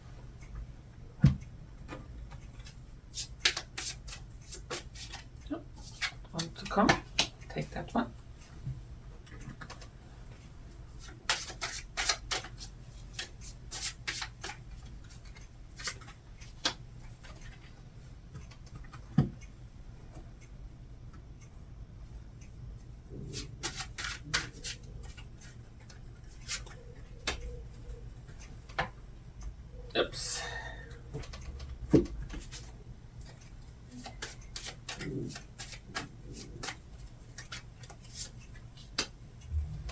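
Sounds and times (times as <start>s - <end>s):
cards snapping and tapping: 3.2s - 5.2s, 11.3s - 14.6s.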